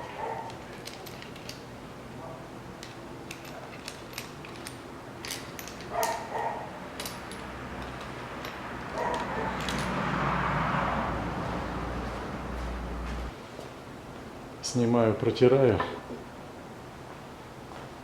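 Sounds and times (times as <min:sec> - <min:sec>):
metal parts clicking and clinking: 0:00.0 - 0:01.7, 0:02.8 - 0:10.0.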